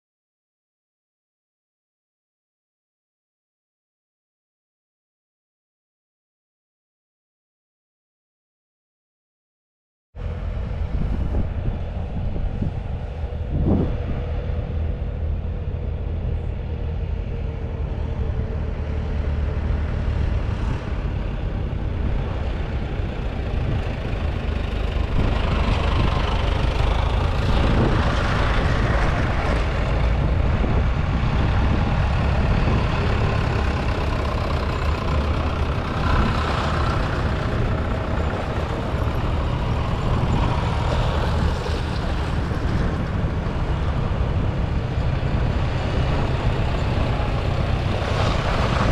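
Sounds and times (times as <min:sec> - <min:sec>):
tractor diesel engines running: 0:10.2 - 0:48.9.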